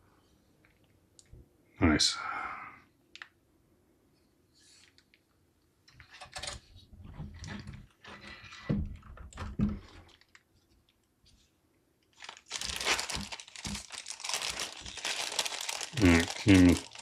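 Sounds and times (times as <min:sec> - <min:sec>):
packaging crinkling: 0:09.8 - 0:10.4, 0:12.1 - 0:17.0.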